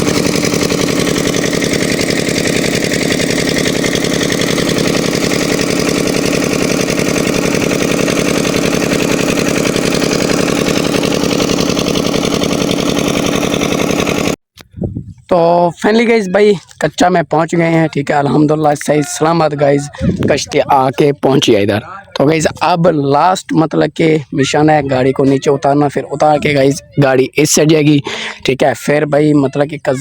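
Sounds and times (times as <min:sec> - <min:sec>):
engine running steadily: 0:00.0 - 0:14.4, 0:17.9 - 0:22.9, 0:27.8 - 0:28.4.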